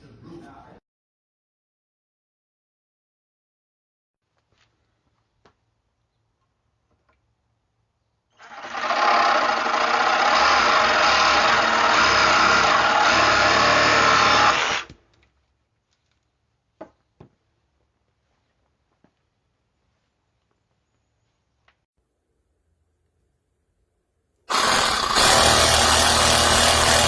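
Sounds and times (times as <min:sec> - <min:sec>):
reciprocating saw running: 0:08.4 - 0:14.9, 0:24.5 - 0:27.0.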